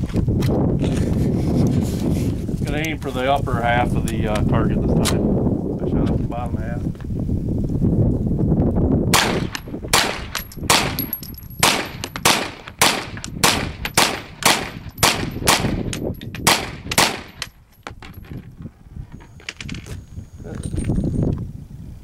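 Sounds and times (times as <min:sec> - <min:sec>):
rifle firing shots: 0:09.1 - 0:17.5.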